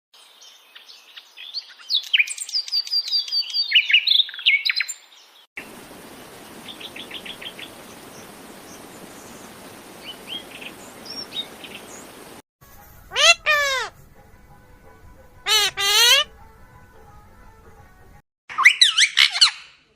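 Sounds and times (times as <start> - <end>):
bird chirping: 0.2 - 5.4, 6.1 - 12.3
background hiss: 5.6 - 13.2.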